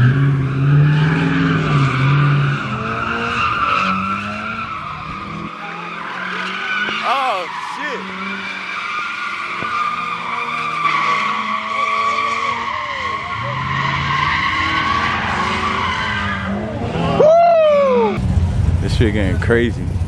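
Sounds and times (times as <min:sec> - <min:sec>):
car tires squealing: 0:00.1 - 0:07.0, 0:08.0 - 0:18.2
person shouting: 0:07.0 - 0:08.0.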